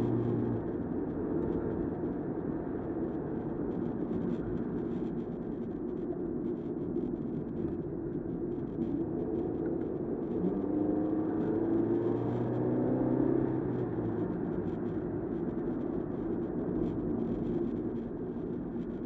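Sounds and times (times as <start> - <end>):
car engine: 0.0 - 4.8, 9.1 - 18.8
road noise: 0.0 - 19.0.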